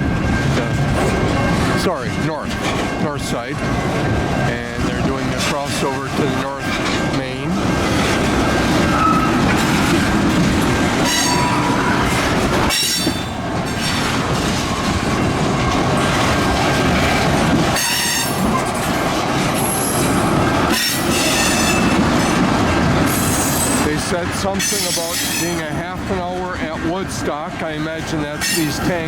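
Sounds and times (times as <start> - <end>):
freight train rumble: 0.0 - 29.0
train wheels clacking: 0.0 - 29.0
high flange squeal: 8.9 - 9.4.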